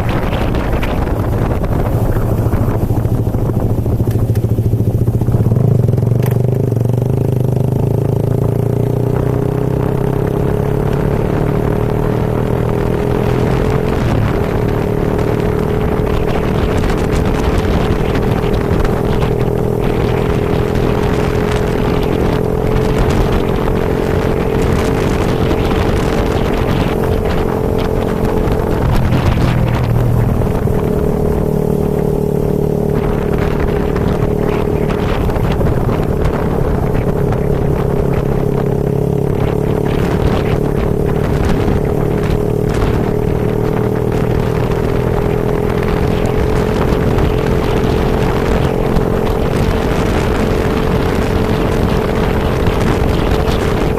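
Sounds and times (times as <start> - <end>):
motorcycle engine running: 0.0 - 53.9
wind and rain on microphone: 0.0 - 53.9.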